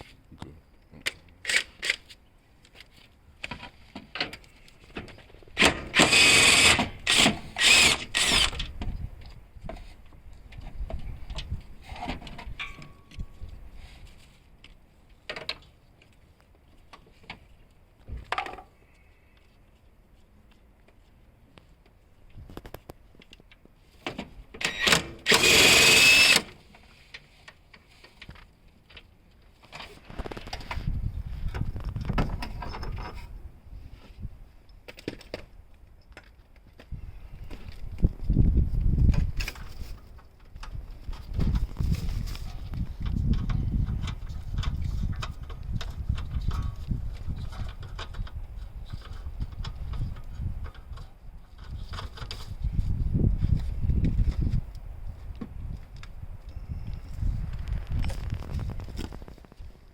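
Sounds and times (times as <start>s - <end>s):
impact wrench spinning: 5.6s - 8.6s, 24.7s - 26.5s
power tool on a bolt: 5.6s - 8.7s, 24.6s - 26.6s.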